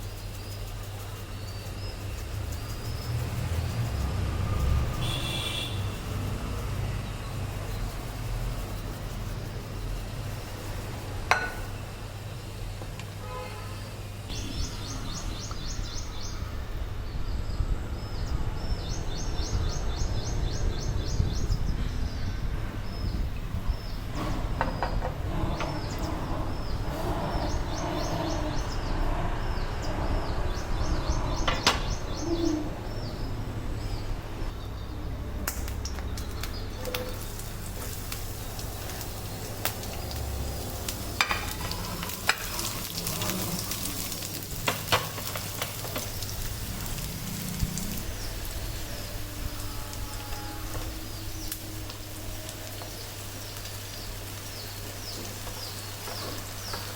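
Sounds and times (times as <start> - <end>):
food sizzling in a frying pan: 0.0 - 15.2, 35.4 - 56.9
bird chirping: 14.3 - 35.2.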